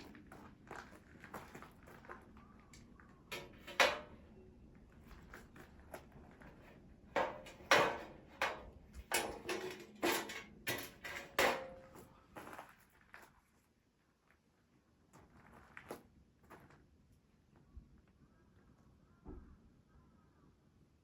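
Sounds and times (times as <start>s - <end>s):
firewood knocking on metal fire pit: 3.4s - 4.2s, 7.2s - 11.8s.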